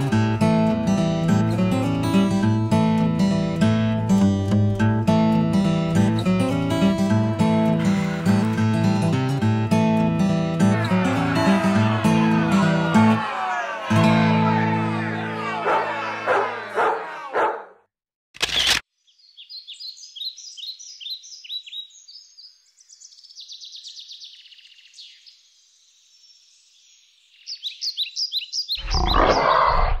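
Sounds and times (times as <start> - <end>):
strummed guitar music: 0.0 - 16.6
birdsong descending chirps: 19.0 - 29.8.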